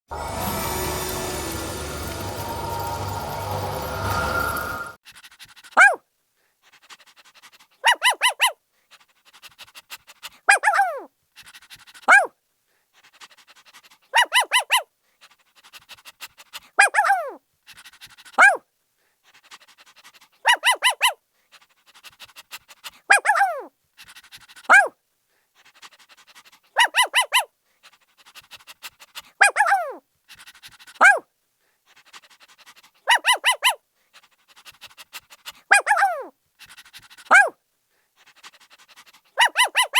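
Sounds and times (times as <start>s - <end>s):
puppy panting: 0.3s - 6.0s, 6.6s - 12.3s, 12.9s - 18.6s, 19.2s - 39.9s
puppy barking and yelping: 5.8s - 6.0s, 7.8s - 8.6s, 10.5s - 11.1s, 11.8s - 12.3s, 14.1s - 14.9s, 16.8s - 17.4s, 18.4s - 18.6s, 20.4s - 21.2s, 23.1s - 23.7s, 24.6s - 25.0s, 26.6s - 27.5s, 29.1s - 31.3s, 32.3s - 37.6s, 38.3s - 39.9s.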